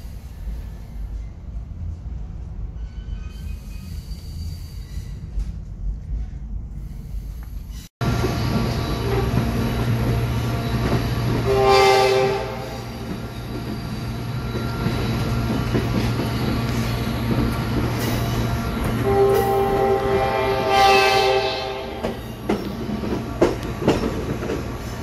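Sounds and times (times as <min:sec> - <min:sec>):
train rumbling inside car: 0:00.0 - 0:25.0
train horn blast: 0:09.0 - 0:09.6, 0:11.3 - 0:13.1, 0:19.0 - 0:22.2.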